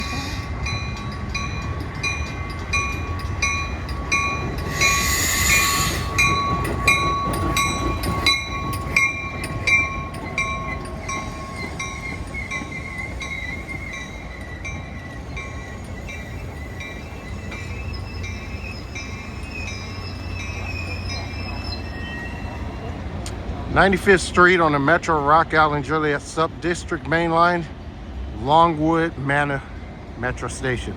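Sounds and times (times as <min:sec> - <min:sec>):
train bell ringing: 0:00.0 - 0:23.2
train rumbling: 0:00.0 - 0:30.9
loud hissing blast: 0:04.7 - 0:06.2.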